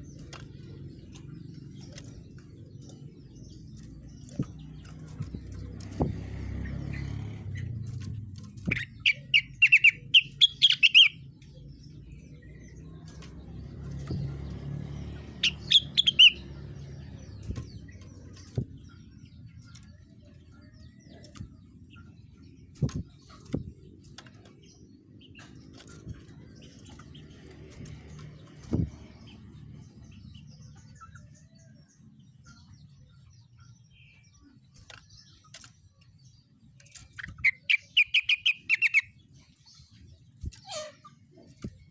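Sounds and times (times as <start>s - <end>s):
songbird chattering trills: 0.0s - 41.9s.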